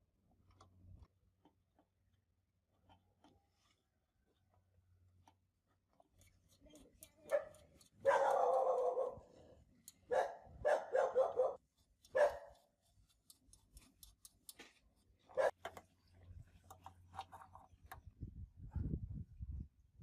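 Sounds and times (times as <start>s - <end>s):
dog barking: 7.3s - 9.3s, 10.1s - 12.6s, 15.3s - 15.6s.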